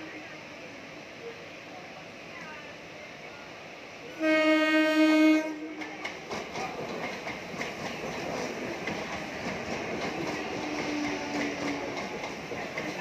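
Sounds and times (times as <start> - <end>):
train rumbling past: 0.0 - 13.0
train horn blast: 4.2 - 5.7
wheels clicking over rail joints: 5.8 - 13.0.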